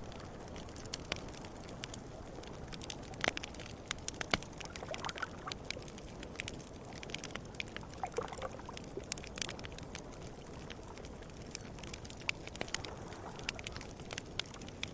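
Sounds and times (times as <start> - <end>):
campfire crackling and popping: 0.0 - 14.9.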